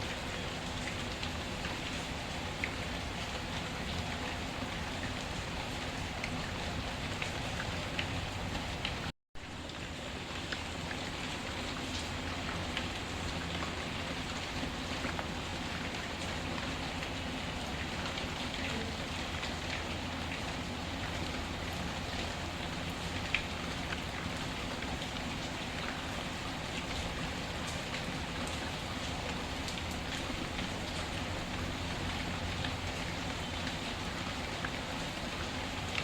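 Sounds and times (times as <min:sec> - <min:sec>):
steady rain falling: 0:00.0 - 0:36.0.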